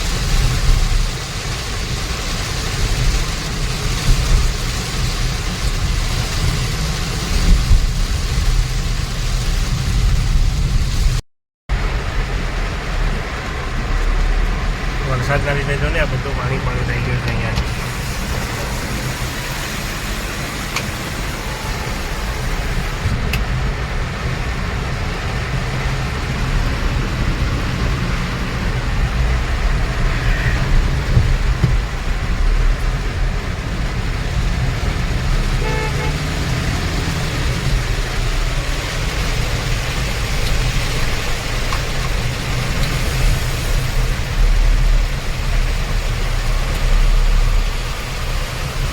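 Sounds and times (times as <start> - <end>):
car engine rumble: 0.0 - 48.9
heavy rain: 0.0 - 48.9
tyres hissing on wet road: 0.0 - 48.9
car horn toot: 35.5 - 36.3.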